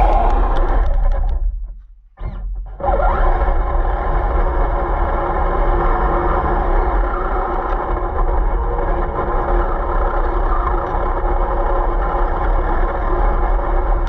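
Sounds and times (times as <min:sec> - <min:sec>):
constant hum: 0:00.0 - 0:02.9.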